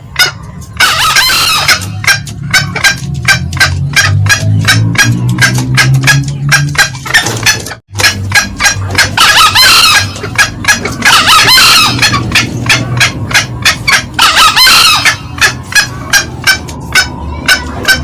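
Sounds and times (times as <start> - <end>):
junglefowl cackling: 0.0 - 18.0
junglefowl crowing bursts: 0.8 - 3.0, 8.3 - 18.0.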